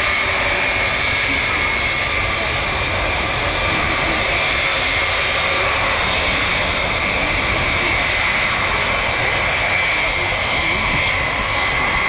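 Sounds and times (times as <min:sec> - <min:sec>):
high steady engine whine: 0:00.0 - 0:12.0
jet engines running: 0:00.0 - 0:12.0.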